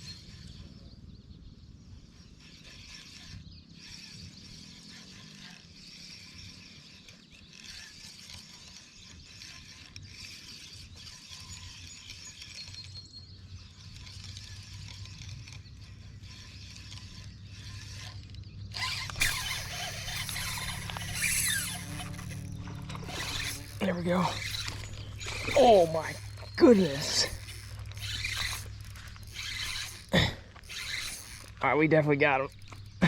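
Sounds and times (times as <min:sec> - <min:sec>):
fishing reel clicking: 0:02.4 - 0:13.0, 0:13.6 - 0:31.6, 0:32.4 - 0:33.0.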